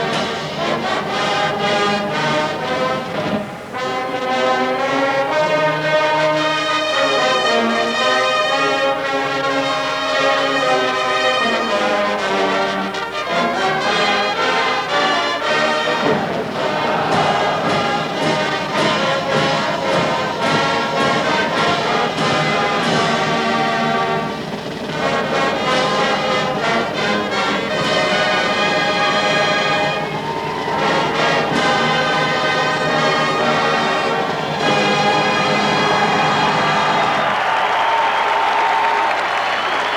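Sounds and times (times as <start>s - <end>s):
marching drums: 0.0s - 4.4s, 13.2s - 38.7s
brass section holding chords: 0.0s - 39.0s.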